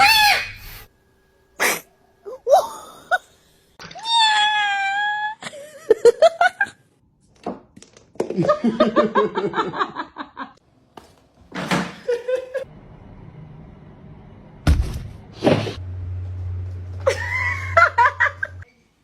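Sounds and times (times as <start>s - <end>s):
person laughing: 17.0s - 18.6s.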